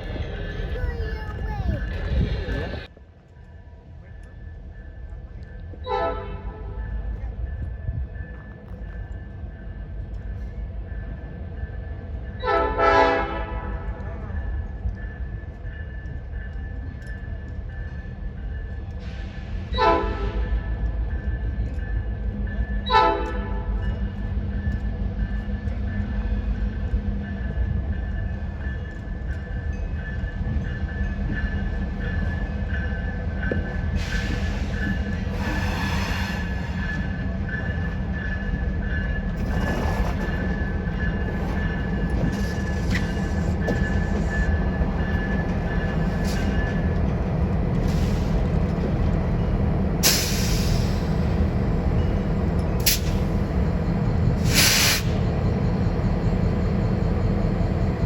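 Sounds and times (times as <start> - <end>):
train rumbling past: 0.0 - 58.0
train horn toot: 5.8 - 6.8, 12.4 - 14.0, 19.7 - 20.6, 22.8 - 23.8
high wheel squeal: 39.4 - 45.4.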